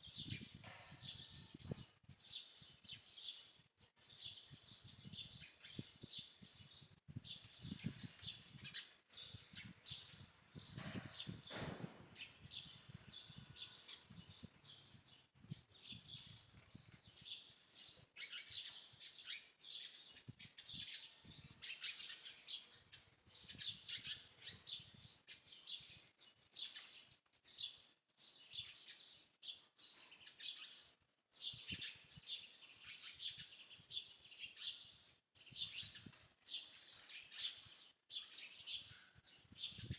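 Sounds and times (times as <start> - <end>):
small birds twittering: 0.0 - 39.9.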